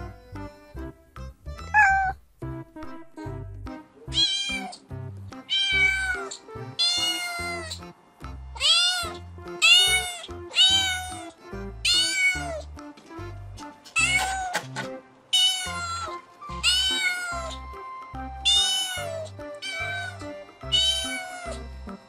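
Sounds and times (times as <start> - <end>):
background music with steady beat: 0.0 - 22.0
cat meowing: 1.6 - 2.2, 4.1 - 4.8, 5.5 - 7.8, 8.6 - 12.6, 13.9 - 17.7, 18.4 - 21.6.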